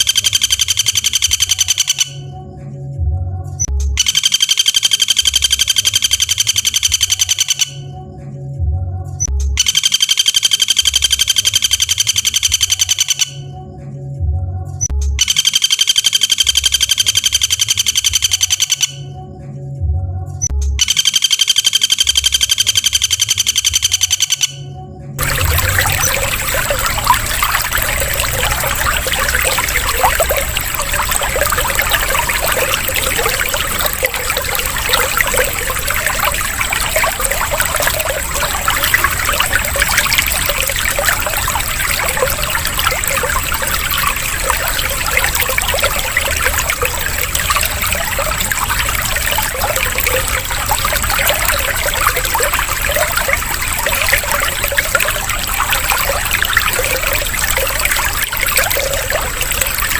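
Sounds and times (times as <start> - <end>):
water trickling and splashing: 0.0 - 2.0, 9.2 - 13.4, 25.2 - 59.9.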